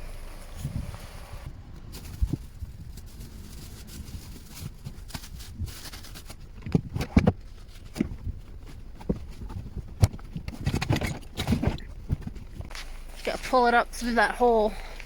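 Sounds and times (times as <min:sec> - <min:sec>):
bedding rustling: 0:01.8 - 0:14.7
knocks and thumps: 0:06.6 - 0:12.8.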